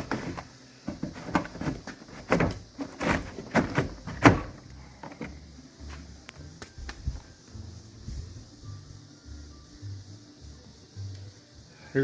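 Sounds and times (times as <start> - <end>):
plastic door panel knocks and clunks: 0.9 - 4.6.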